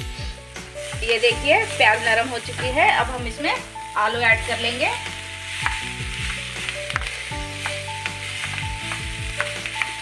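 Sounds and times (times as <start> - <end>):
potatoes sizzling in frying pan: 0.0 - 10.0
soft background music: 0.0 - 10.0.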